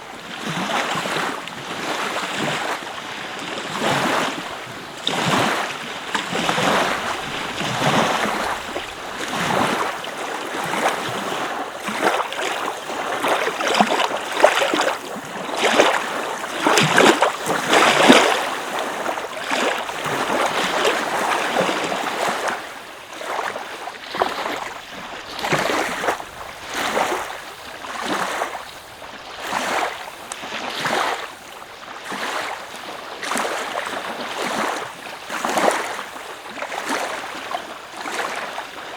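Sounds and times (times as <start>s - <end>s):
small waves washing onto beach: 0.0s - 38.9s.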